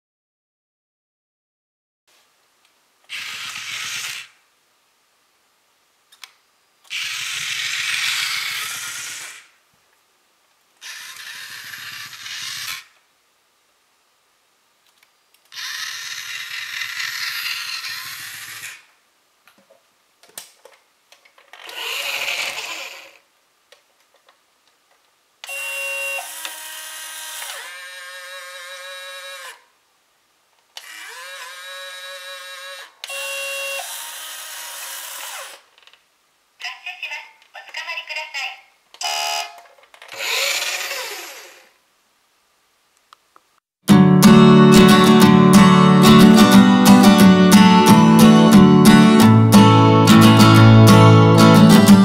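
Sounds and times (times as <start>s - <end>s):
electric motor whirring: 3.1s - 4.4s, 6.9s - 9.5s, 10.8s - 13.0s, 15.5s - 18.9s, 21.6s - 23.2s, 25.5s - 29.6s, 30.8s - 35.6s, 39.0s - 41.8s.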